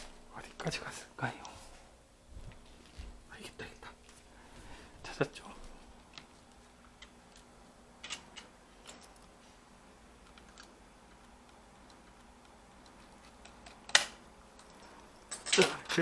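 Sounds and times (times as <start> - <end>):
small parts clicking and tapping: 6.0 - 9.3, 10.2 - 16.0.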